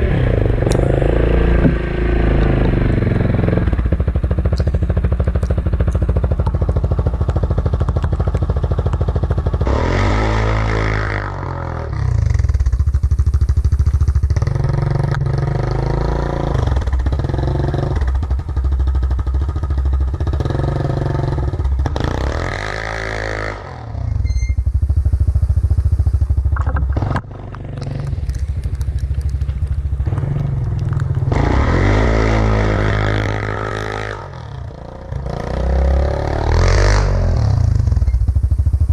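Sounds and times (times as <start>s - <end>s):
atv engine revving under load: 0.0s - 38.9s.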